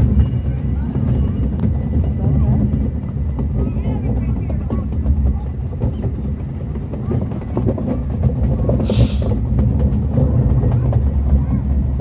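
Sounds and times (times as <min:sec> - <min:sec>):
miniature train rumbling on track: 0:00.0 - 0:12.0
brief hiss: 0:08.8 - 0:09.4.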